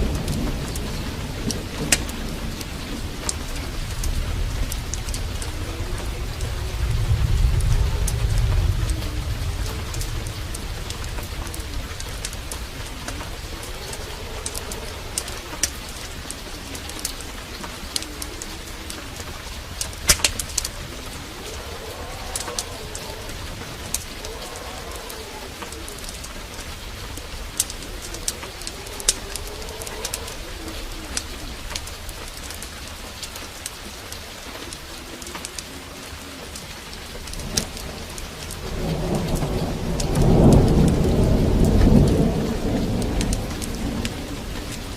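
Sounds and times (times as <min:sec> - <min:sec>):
dove cooing: 0:00.0 - 0:44.9
heavy rain: 0:00.0 - 0:44.9
thunder rumbling: 0:00.0 - 0:44.9
sharp ticks: 0:19.2 - 0:20.7.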